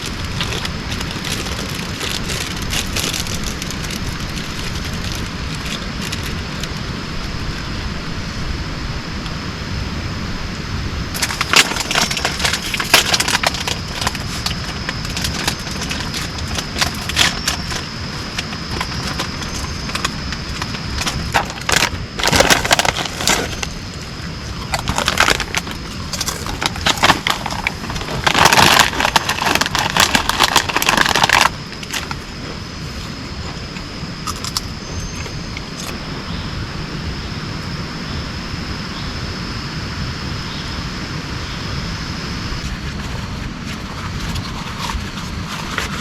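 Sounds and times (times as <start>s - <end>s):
dense crackling and rustling: 0.0s - 7.8s, 11.1s - 36.1s, 42.5s - 46.0s
steady rain hiss: 0.0s - 46.0s.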